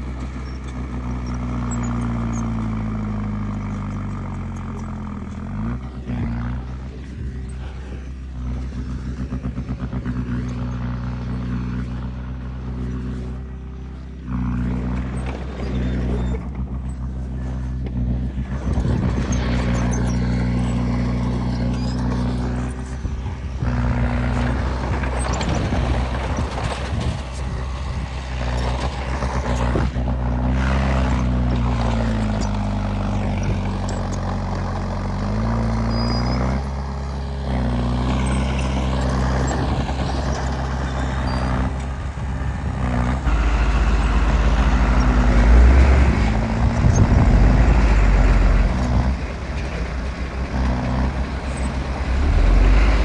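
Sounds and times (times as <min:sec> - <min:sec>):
heavy diesel machinery engine: 0:00.0 - 0:53.0
metallic clanking and scraping: 0:03.7 - 0:34.4, 0:43.2 - 0:53.0.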